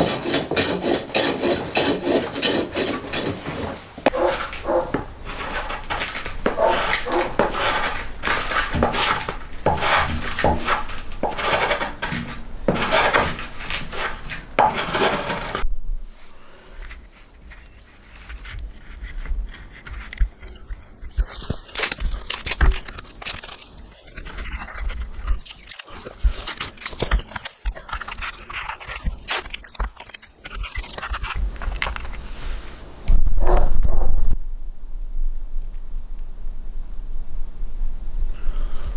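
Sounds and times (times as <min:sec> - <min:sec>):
hand tool rasping wood: 0:00.0 - 0:15.6
scattered knocks and handling: 0:00.0 - 0:15.6.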